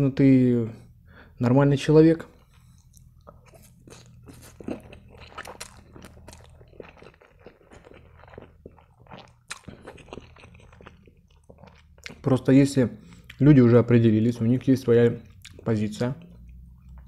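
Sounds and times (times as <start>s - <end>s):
person chewing and slurping noodles: 2.4s - 12.3s.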